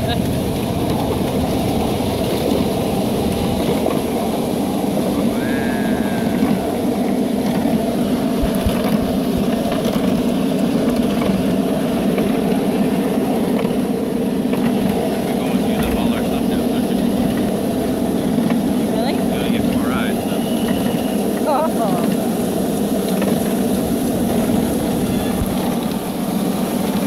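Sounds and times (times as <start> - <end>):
steam train rumble and rattle: 0.0 - 27.0.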